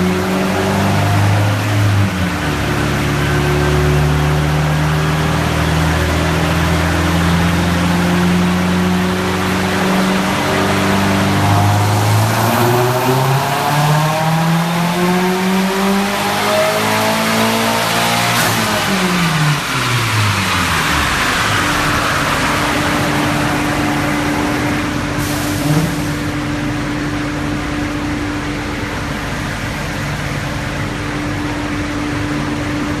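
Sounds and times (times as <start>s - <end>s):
car engine revs falling: 0.0s - 26.4s
loud rushing noise with hum: 18.5s - 33.0s.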